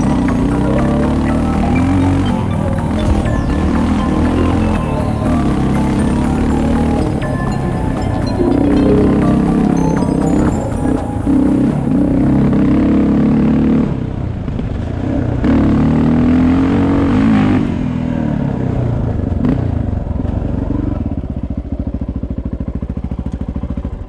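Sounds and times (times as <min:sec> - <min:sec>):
dirt bike engine revving and idling: 0:00.0 - 0:14.2.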